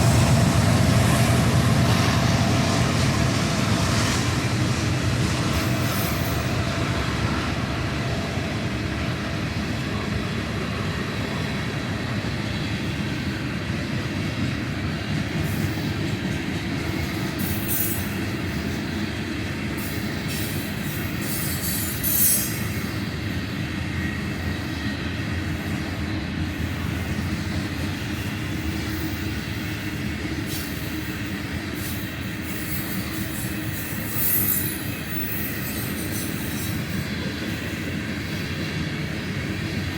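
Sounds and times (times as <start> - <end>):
train wheels rumbling on rail: 0.0 - 39.9
high-pitched wheel squeals: 32.6 - 36.8.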